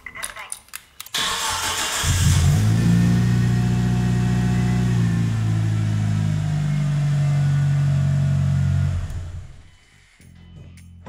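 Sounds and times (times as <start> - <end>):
car engine idling: 1.2 - 9.7.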